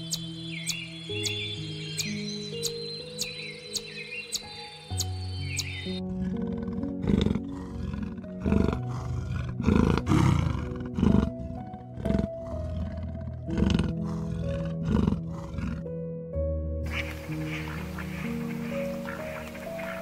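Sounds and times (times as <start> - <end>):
background music sustained notes: 0.0 - 20.0
leopard rasping grunts: 5.9 - 16.0, 16.9 - 20.0.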